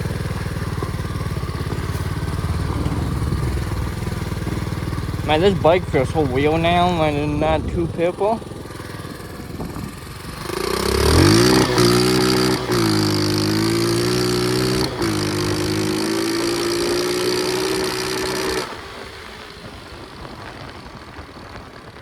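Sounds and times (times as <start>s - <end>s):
pit bike engine revving: 0.0s - 19.5s.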